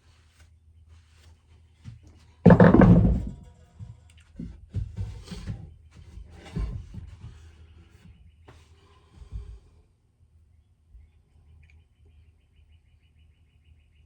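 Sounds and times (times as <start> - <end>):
light knocks and clanks: 1.8 - 8.6.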